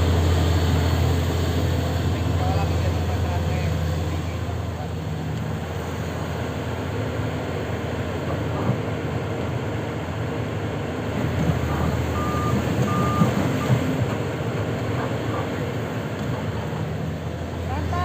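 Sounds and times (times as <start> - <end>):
excavator diesel engine running: 0.0 - 18.0
warning alarm beeps: 11.8 - 14.0.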